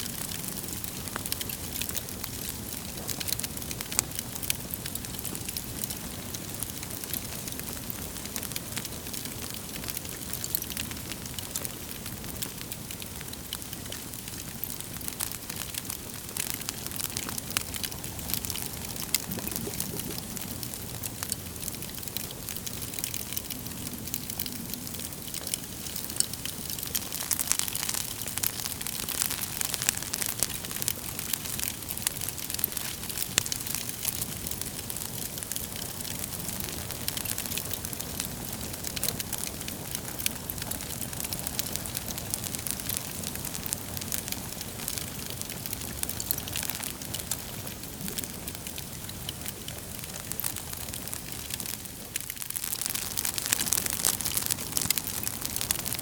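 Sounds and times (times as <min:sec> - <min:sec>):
wood fire crackling: 0:00.0 - 0:56.0
hiss of flames: 0:15.7 - 0:30.2.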